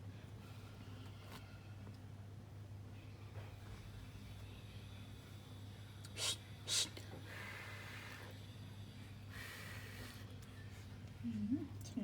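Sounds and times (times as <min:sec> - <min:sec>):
steady low hum: 0:00.0 - 0:12.0
breathy hissing: 0:09.3 - 0:10.3
sharp puffs of breath: 0:09.3 - 0:10.3.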